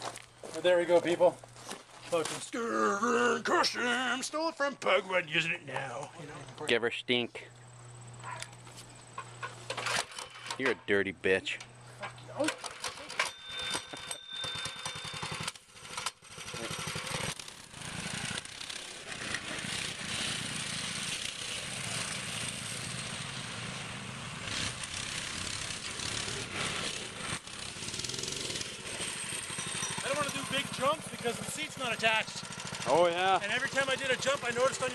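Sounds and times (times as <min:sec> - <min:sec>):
small engine running: 0:12.5 - 0:34.9.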